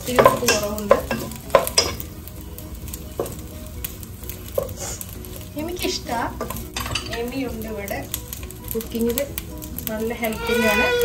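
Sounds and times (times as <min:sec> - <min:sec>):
pot sizzling: 0:00.0 - 0:11.0
spoon knocking on pan: 0:00.1 - 0:02.0, 0:03.2 - 0:03.4.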